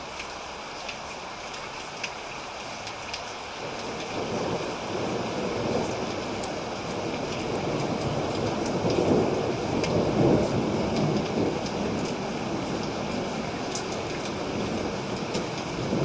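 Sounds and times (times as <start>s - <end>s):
heavy rain: 0.0s - 16.0s
thunder rumbling: 3.6s - 16.0s.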